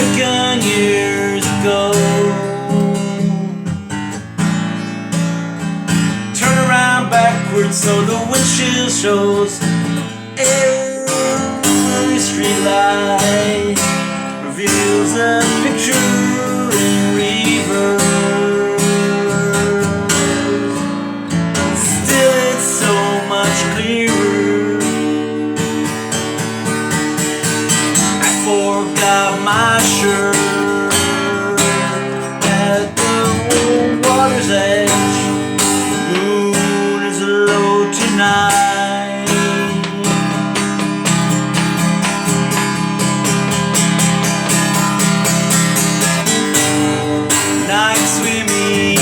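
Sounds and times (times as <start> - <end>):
person singing: 0.0 - 3.9, 6.3 - 25.9, 28.0 - 42.1, 45.8 - 49.0
acoustic guitar strumming: 0.0 - 49.0.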